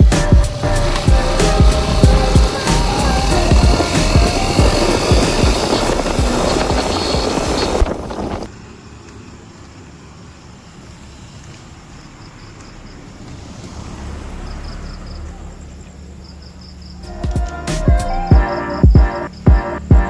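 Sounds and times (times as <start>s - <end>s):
music: 0.0s - 7.7s, 17.1s - 20.0s.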